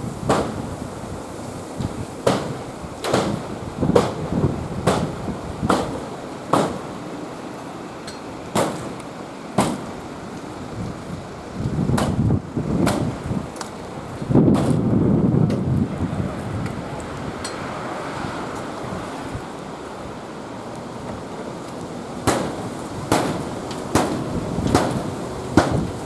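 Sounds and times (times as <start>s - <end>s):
wind noise on microphone: 0.0s - 6.2s, 9.9s - 19.5s, 22.3s - 26.0s
sharp knocks or bangs: 2.2s - 4.2s, 4.8s - 5.1s, 5.7s - 6.8s, 8.6s - 9.0s, 9.6s - 9.9s, 22.3s - 25.9s.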